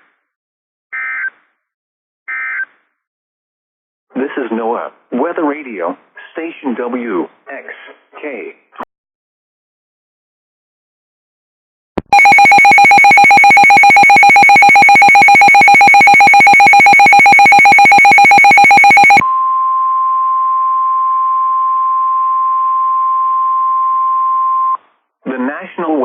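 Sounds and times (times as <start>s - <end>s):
pulsing buzz alarm: 12.1s - 19.2s
steady high alarm tone: 12.1s - 19.2s.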